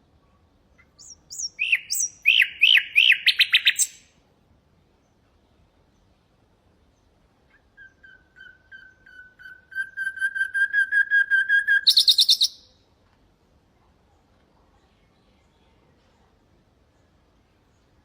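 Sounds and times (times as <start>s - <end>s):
nightingale singing: 0.7s - 4.1s, 7.0s - 12.8s.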